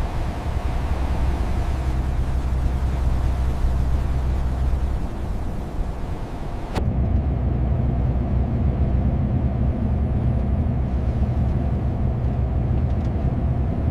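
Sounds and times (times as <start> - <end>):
truck engine rumbling: 0.0 - 13.9.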